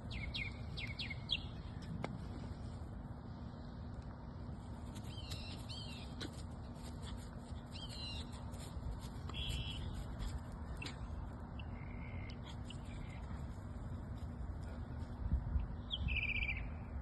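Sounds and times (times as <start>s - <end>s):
birds chirping: 0.0s - 1.9s, 7.6s - 8.6s, 9.2s - 13.5s
low background noise: 0.0s - 17.0s.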